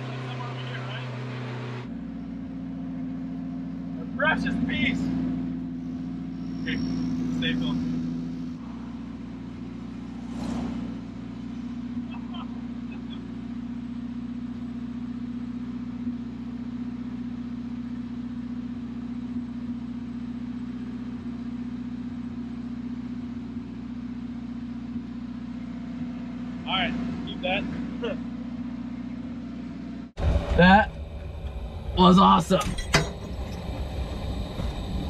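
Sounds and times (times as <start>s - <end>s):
car engine idling: 0.0s - 35.0s
car passing by: 10.1s - 11.2s.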